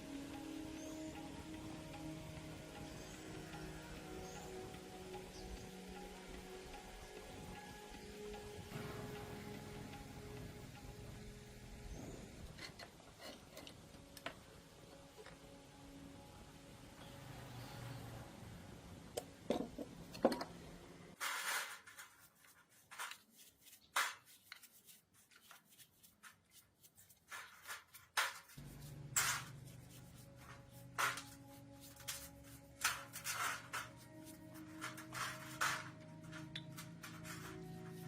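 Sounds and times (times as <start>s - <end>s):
faint background music: 0.0s - 21.2s, 28.6s - 38.0s
hand scraping and knocking parts: 19.5s - 20.6s, 21.2s - 38.0s.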